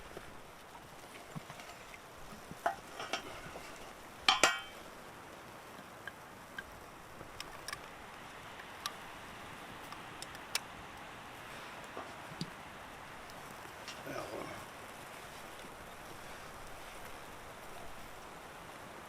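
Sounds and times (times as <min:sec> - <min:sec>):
light ticks: 0:05.3 - 0:09.0, 0:09.8 - 0:11.1.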